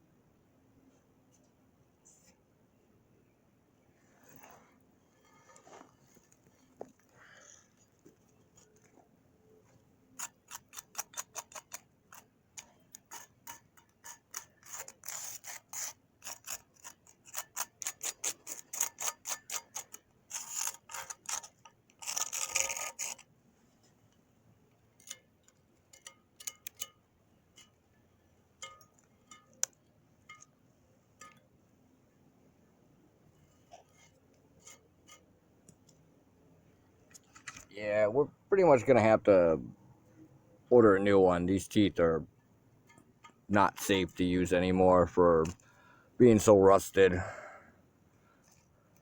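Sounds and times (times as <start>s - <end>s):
rasping scrapes on metal: 10.2s - 23.3s.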